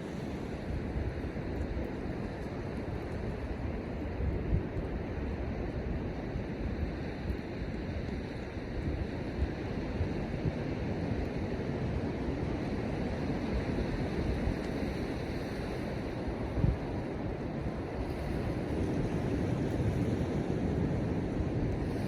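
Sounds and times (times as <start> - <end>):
ocean surf: 0.0 - 22.0.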